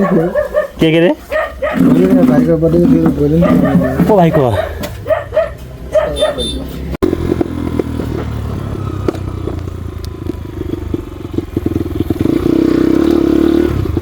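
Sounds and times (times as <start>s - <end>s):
person speaking: 0.0s - 4.8s
motorcycle engine running: 5.0s - 14.0s.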